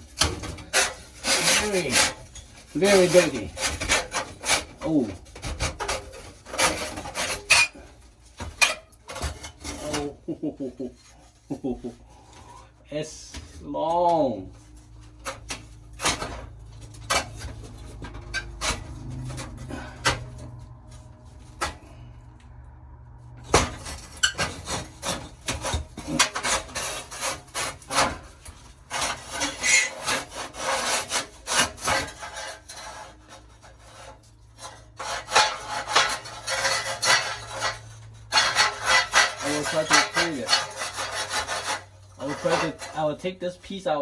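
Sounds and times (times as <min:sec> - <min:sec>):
hand scraping metal part: 0:00.0 - 0:44.0.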